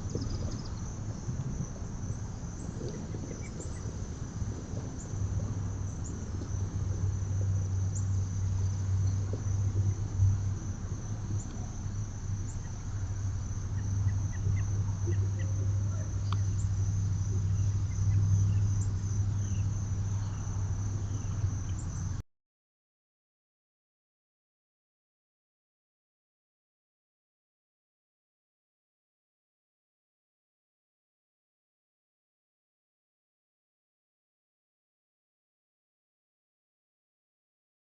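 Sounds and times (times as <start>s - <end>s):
steady low hum: 0.0s - 22.2s
high-pitched insect drone: 0.1s - 22.2s.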